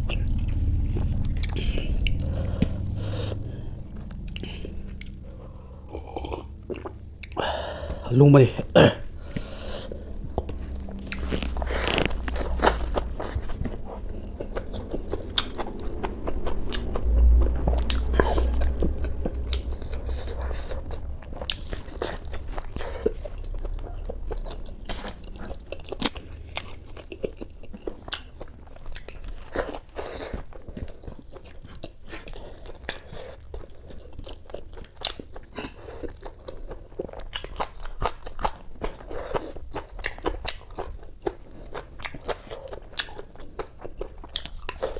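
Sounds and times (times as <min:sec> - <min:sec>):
low rumble: 0:00.0 - 0:31.6
person chewing food: 0:00.0 - 0:44.9
mouth clicks and crunches: 0:09.3 - 0:44.9.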